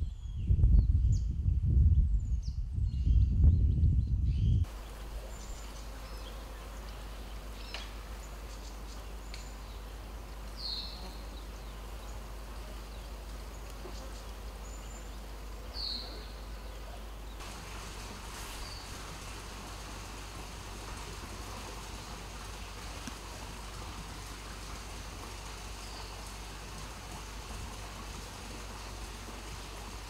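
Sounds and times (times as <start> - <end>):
steady hiss: 4.6 - 30.0
bright rushing hiss: 17.4 - 30.0.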